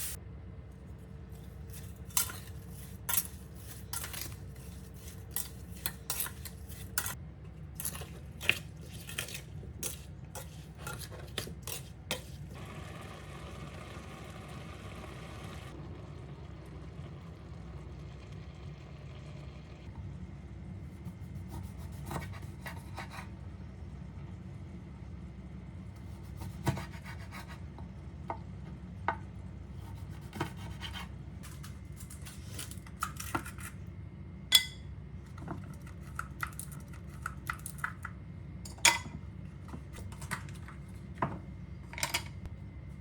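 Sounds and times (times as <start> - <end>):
utensils clinking against dishes: 1.7 - 7.2, 7.8 - 12.3, 34.5 - 34.9, 38.7 - 39.2, 41.9 - 42.5.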